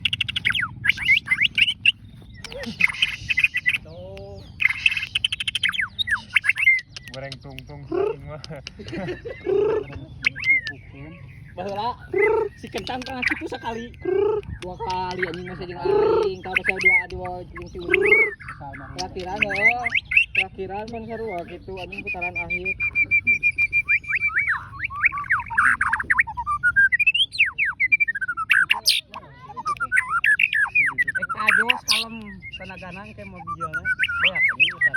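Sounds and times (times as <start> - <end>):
low background rumble: 0.0 - 34.5
songbird whistling and trilling: 0.0 - 34.9.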